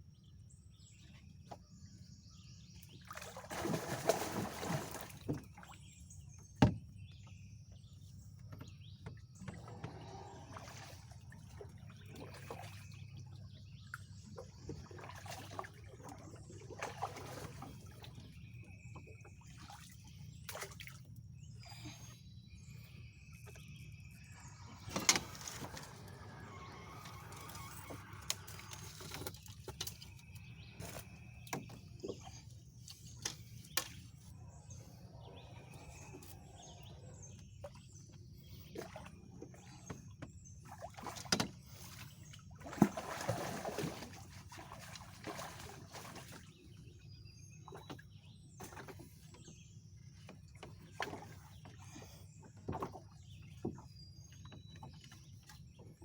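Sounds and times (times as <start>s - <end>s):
faint birdsong: 0.0s - 56.0s
water splashing: 3.1s - 5.3s, 42.6s - 46.6s
knocks on a small boat: 6.6s - 7.0s.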